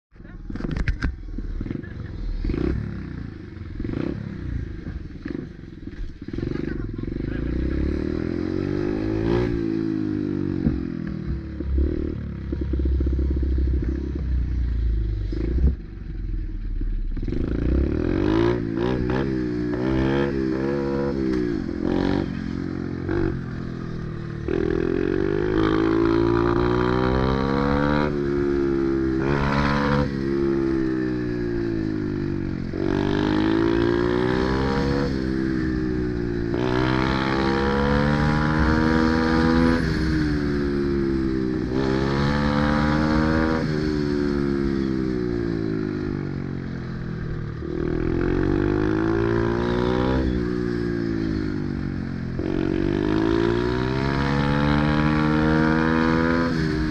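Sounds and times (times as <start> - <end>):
pit bike engine revving: 17.2 - 23.5, 24.4 - 45.8, 52.4 - 56.9.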